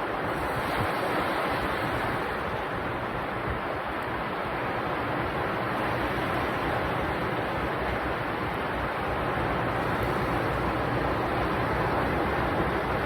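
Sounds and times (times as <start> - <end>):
sea waves breaking on beach: 0.0 - 13.0.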